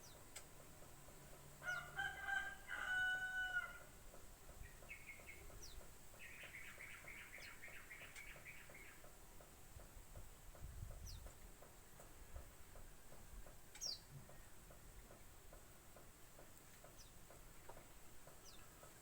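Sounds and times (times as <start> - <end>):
small bird chirping: 0.0 - 0.4, 4.6 - 9.1, 13.8 - 14.5
rooster crowing: 1.6 - 3.9.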